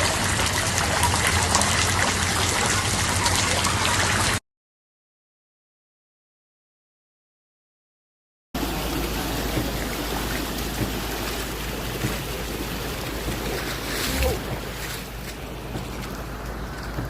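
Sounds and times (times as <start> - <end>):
floodwater rushing: 0.0 - 4.4, 8.6 - 17.0.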